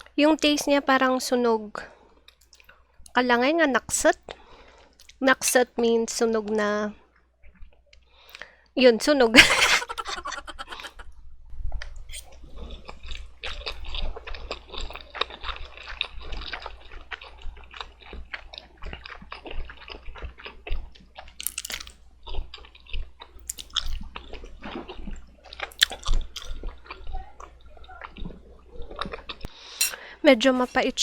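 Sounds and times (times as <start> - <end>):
wet chewing of noodles: 2.0 - 3.2, 4.2 - 5.2, 7.0 - 8.7, 9.4 - 31.0
lip smacks: 23.4 - 24.0, 25.7 - 26.6.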